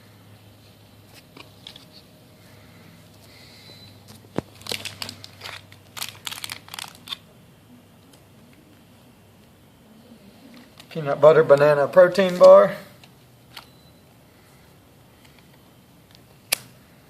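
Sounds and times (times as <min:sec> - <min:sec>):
plastic packaging crinkling: 0:04.1 - 0:07.2.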